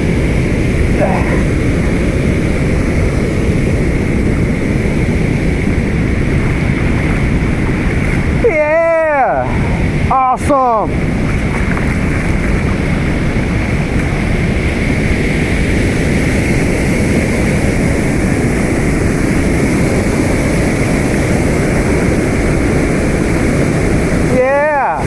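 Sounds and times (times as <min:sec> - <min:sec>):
wind buffeting microphone: 0:00.0 - 0:25.0
water pouring over spillway: 0:11.1 - 0:14.7.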